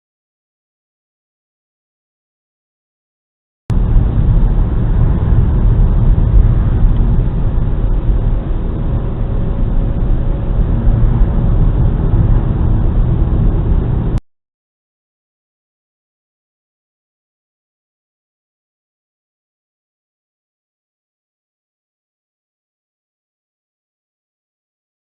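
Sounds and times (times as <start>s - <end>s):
car road and engine rumble: 3.7s - 14.2s.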